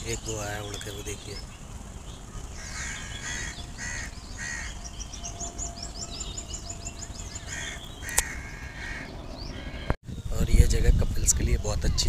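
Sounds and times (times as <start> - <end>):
wild birds calling: 0.0 - 10.0.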